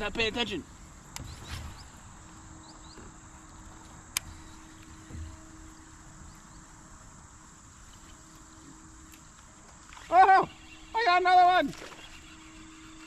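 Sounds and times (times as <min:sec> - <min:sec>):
high-pitched insect drone: 0:01.3 - 0:13.0
soft low thump: 0:05.0 - 0:05.6.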